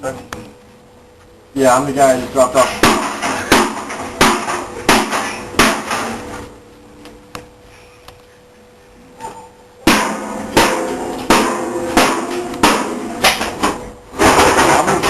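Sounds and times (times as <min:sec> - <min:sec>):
hammer bashing a computer: 0:02.6 - 0:06.2, 0:09.8 - 0:15.0.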